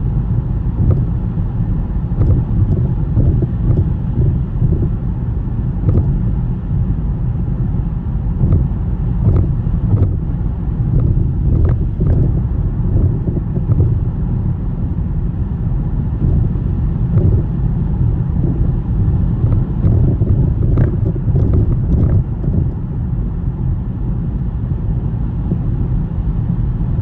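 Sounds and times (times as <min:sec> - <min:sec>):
car tyres and engine rumble: 0:00.0 - 0:27.0.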